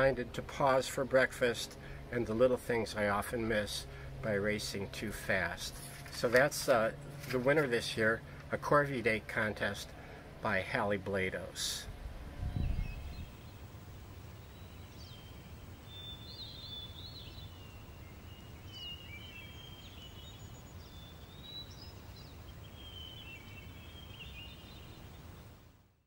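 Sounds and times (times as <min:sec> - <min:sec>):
low outdoor rumble: 0:00.0 - 0:25.7
songbirds chirping and whistling: 0:11.7 - 0:25.5.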